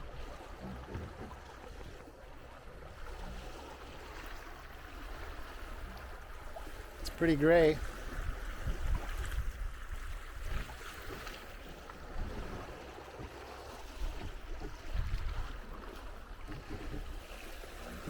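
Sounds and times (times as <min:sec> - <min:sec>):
water splashing along hull: 0:00.0 - 0:18.0
wind buffeting microphone: 0:07.8 - 0:11.3, 0:13.8 - 0:18.0.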